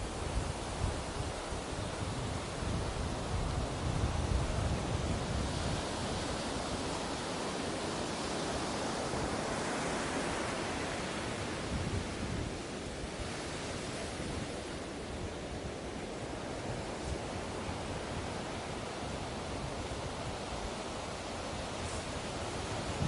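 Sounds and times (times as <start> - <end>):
ocean waves washing onto beach: 0.0 - 23.0.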